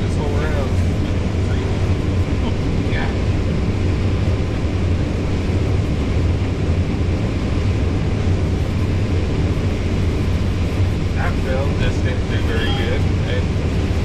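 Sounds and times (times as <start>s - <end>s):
combine harvester engine drone: 0.0s - 14.0s.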